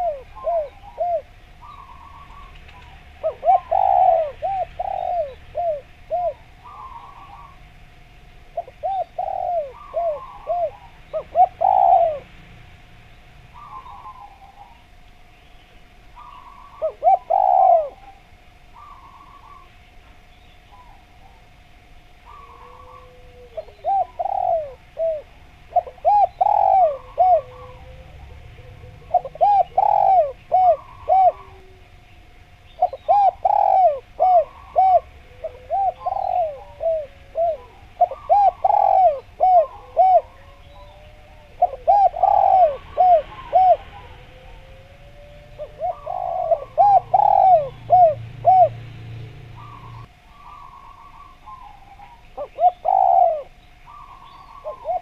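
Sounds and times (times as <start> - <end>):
small birds chirping: 0.0 - 12.4, 13.0 - 21.6, 22.2 - 55.0
dove cooing: 0.0 - 12.5, 13.4 - 15.0, 16.1 - 55.0.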